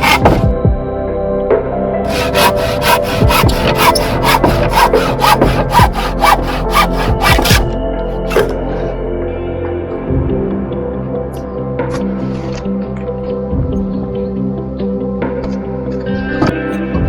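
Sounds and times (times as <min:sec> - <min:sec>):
hand saw cutting wood: 0:00.0 - 0:00.5, 0:02.1 - 0:08.7
background music: 0:00.0 - 0:17.0.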